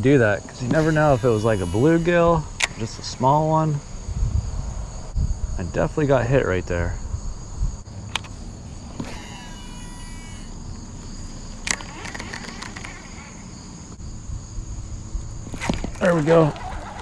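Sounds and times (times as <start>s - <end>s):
crickets chirring: 0.0s - 17.0s
sharp clicks: 2.6s - 3.0s, 8.0s - 8.4s, 9.0s - 13.4s.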